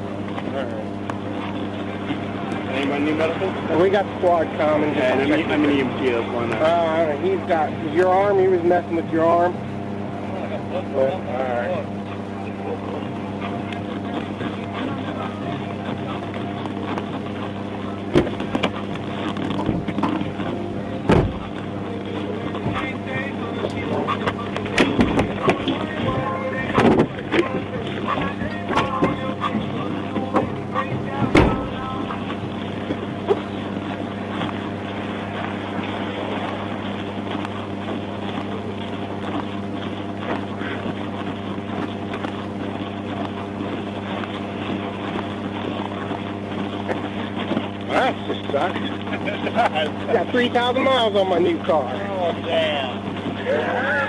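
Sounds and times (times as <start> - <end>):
faint voices: 0.0 - 54.0
vehicle engine idling: 14.4 - 37.5
sharp knocks: 21.0 - 21.6, 31.2 - 31.8.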